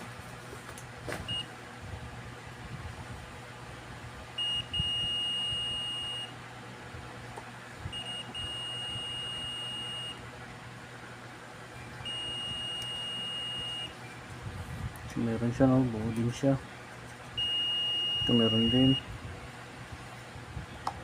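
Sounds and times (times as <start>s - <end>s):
multimeter continuity beeps: 1.3s - 1.5s, 4.4s - 6.4s, 7.9s - 10.2s, 11.8s - 14.2s, 17.4s - 19.1s.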